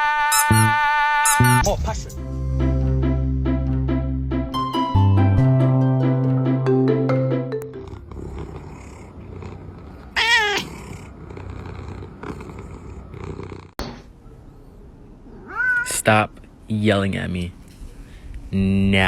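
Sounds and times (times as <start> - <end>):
cat purring: 7.8 - 13.8.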